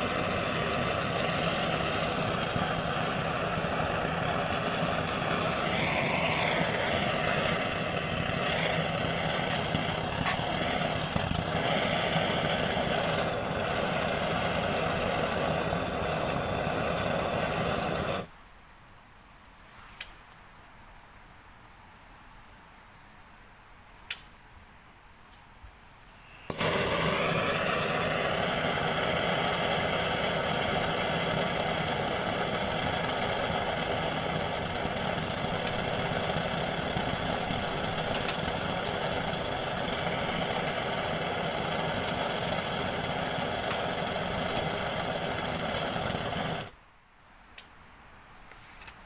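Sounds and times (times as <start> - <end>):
small motor humming: 0.0 - 18.3, 26.4 - 46.7.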